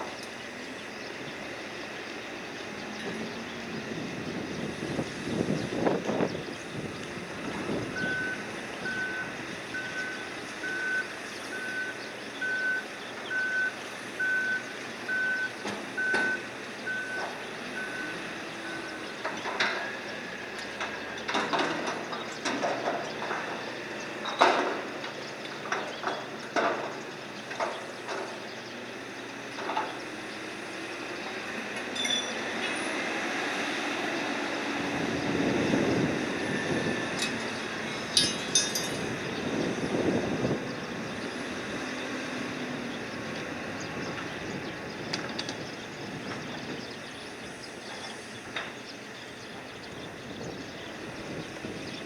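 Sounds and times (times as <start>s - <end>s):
high electronic warning beeps: 7.9s - 19.0s
metallic clanks of cargo handling: 38.1s - 39.1s.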